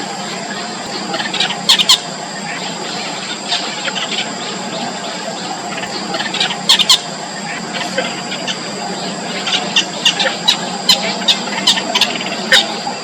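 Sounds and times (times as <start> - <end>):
high-pitched drone: 0.0 - 13.0
bird nestlings squeaking: 0.8 - 4.4, 5.7 - 8.6.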